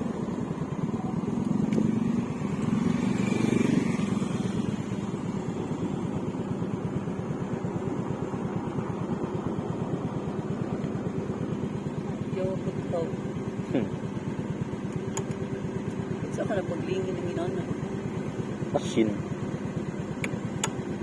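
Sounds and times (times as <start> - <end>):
scooter engine running: 0.0 - 21.0.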